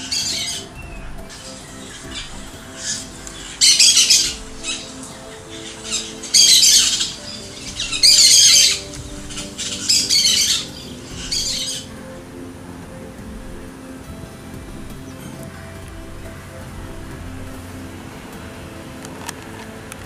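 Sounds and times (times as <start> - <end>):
soft sustained music: 0.0 - 20.0.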